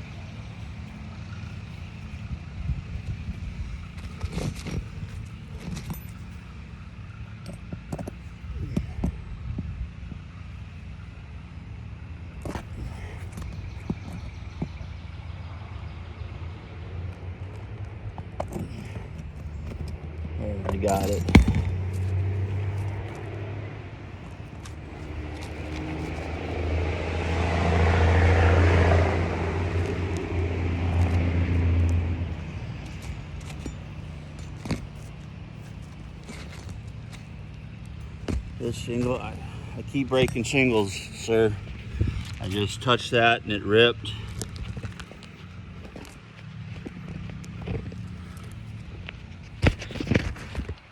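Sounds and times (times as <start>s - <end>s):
steady low rumble: 0.0s - 49.9s
vehicle passing by: 14.4s - 49.5s
tool knocking and scraping shingles: 20.6s - 23.3s, 32.3s - 43.0s.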